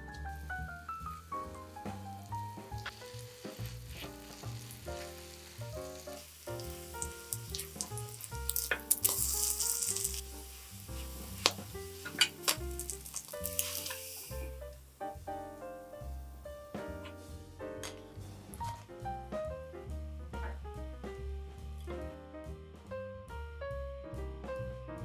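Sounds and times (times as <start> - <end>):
food sizzling in a pan: 0.0 - 15.4
soft piano music: 0.0 - 25.0.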